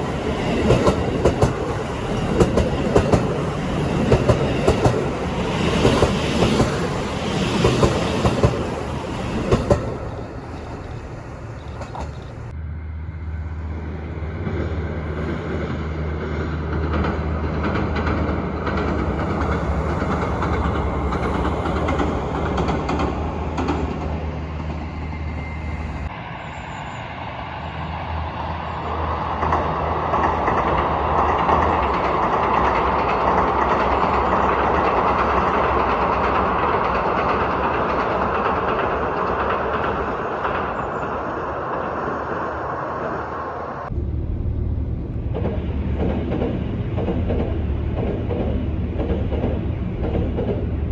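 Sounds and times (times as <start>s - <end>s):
train wheels clattering over rail joints: 0.0s - 12.5s, 15.5s - 26.1s, 29.4s - 41.1s, 45.1s - 50.9s
rush of wheel and rail noise: 0.0s - 50.9s.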